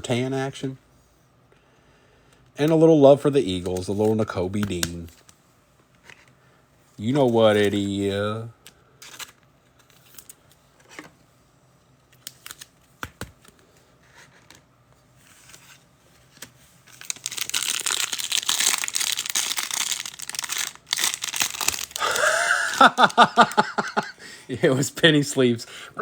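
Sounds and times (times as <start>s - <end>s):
plastic packaging crinkling and tearing: 12.2s - 12.7s, 16.8s - 24.1s.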